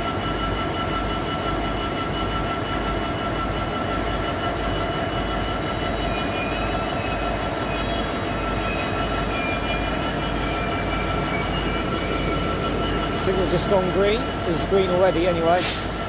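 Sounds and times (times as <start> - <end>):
diesel train engine idling: 0.0 - 16.0
faint whine: 4.6 - 15.6.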